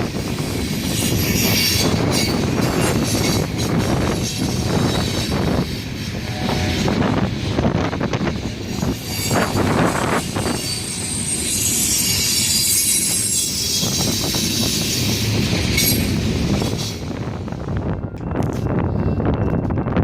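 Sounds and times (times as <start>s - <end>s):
train wheels clacking on rails: 0.0s - 19.8s
high-pitched wheel squeal: 8.7s - 16.9s.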